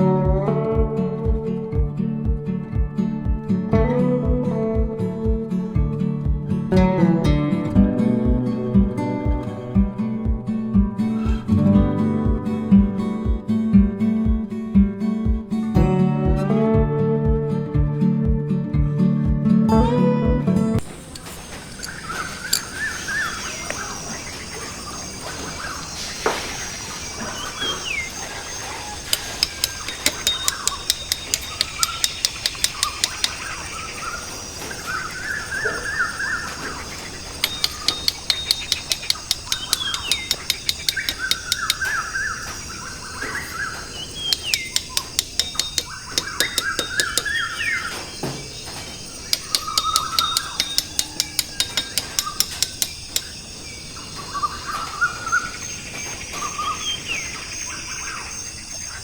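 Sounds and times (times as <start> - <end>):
birds chirping and warbling: 7.7 - 13.3, 20.8 - 59.0
rapid high ticking: 27.9 - 35.4, 36.4 - 43.2, 43.8 - 53.7.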